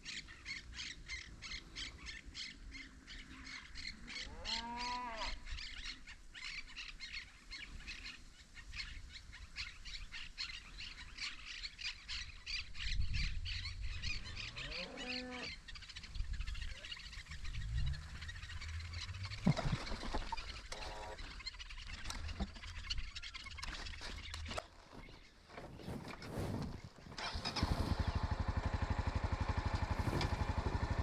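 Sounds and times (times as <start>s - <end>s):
birds chirping rapidly: 0.0s - 31.0s
low animal call: 4.1s - 5.6s, 13.5s - 21.4s.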